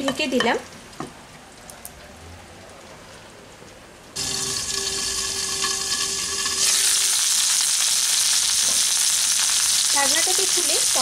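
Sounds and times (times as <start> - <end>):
steady tone: 4.2 - 6.6
vegetables sizzling in oil: 4.2 - 11.0.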